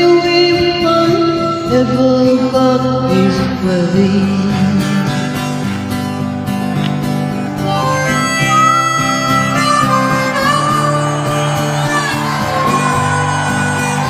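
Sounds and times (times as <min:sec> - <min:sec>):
strummed acoustic guitar: 0:00.0 - 0:14.0
harmonica melody: 0:07.1 - 0:14.0.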